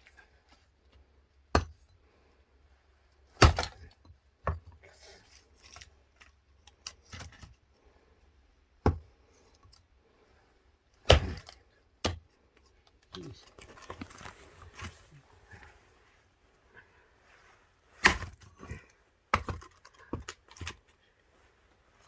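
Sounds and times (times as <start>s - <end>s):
axe splitting firewood: 1.4s - 2.0s, 3.3s - 4.8s, 5.6s - 7.6s, 8.8s - 9.8s, 11.0s - 15.0s, 18.0s - 20.9s.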